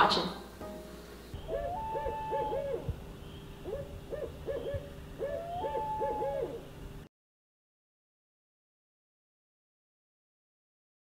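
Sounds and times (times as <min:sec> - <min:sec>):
bird hooting calls: 0:01.4 - 0:06.8.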